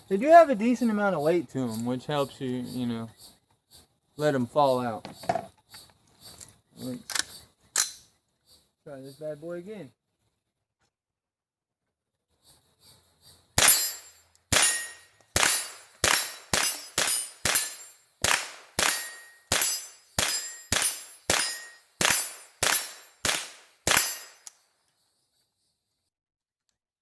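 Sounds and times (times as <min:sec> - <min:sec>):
rifle shots cracking: 0:13.6 - 0:24.5.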